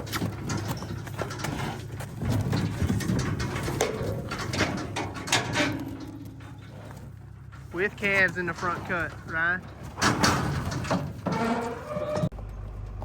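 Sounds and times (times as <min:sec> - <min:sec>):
hooves clattering on metal: 0:00.0 - 0:13.0
low steady hum: 0:00.0 - 0:13.0.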